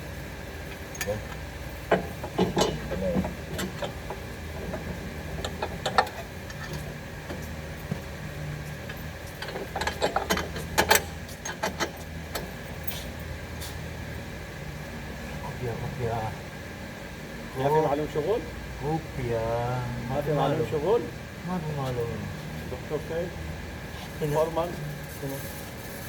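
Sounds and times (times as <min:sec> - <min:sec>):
low workshop hum: 0:00.0 - 0:26.0
metallic clicks and knocks: 0:01.9 - 0:07.5, 0:08.9 - 0:12.5.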